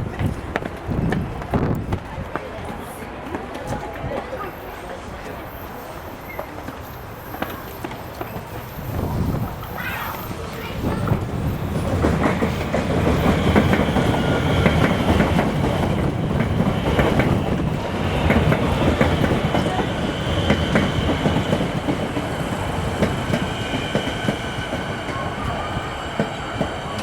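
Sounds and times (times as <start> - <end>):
electric train rumbling: 0.0 - 27.0
high squealing of train brakes: 4.4 - 12.7, 22.3 - 27.0.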